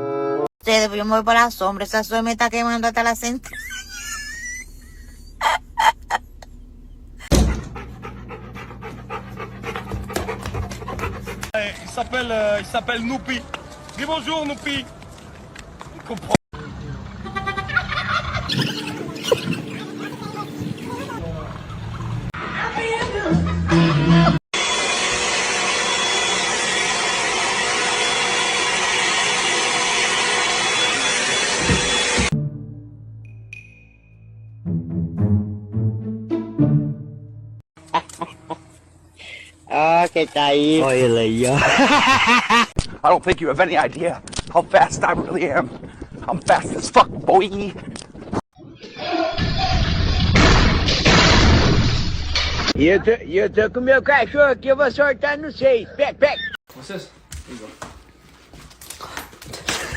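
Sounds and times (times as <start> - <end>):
dog panting: 7.4 - 11.6.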